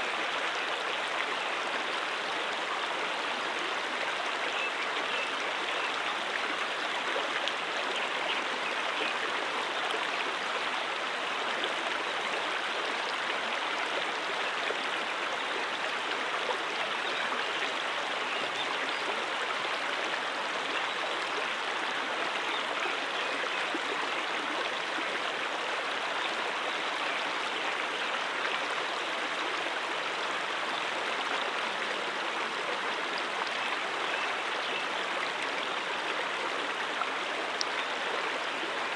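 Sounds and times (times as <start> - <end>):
stream babbling over rocks: 0.0 - 38.9.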